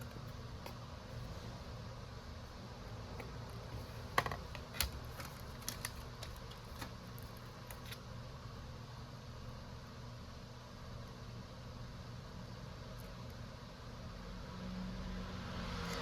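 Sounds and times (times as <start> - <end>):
steady low hum: 0.0 - 15.5.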